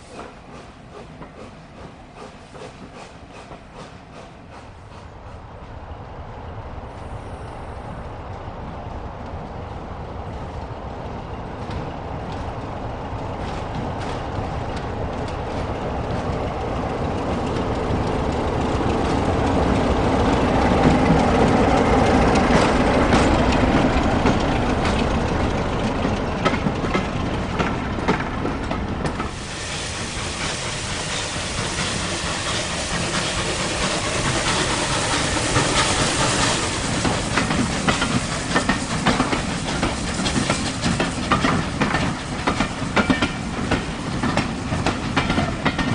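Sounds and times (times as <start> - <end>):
train rumbling past: 0.0 - 45.9
wheels clicking over rail joints: 11.6 - 29.4, 31.6 - 45.9.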